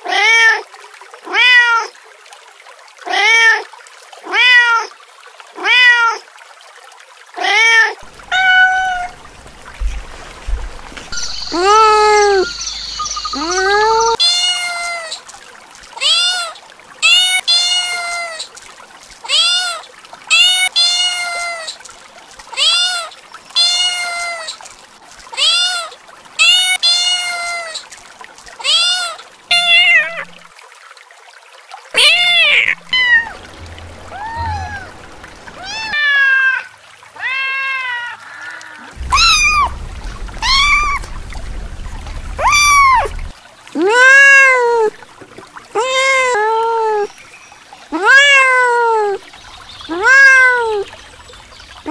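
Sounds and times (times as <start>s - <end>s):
kittens meowing: 8.3s - 9.2s, 32.0s - 33.4s, 34.1s - 43.3s.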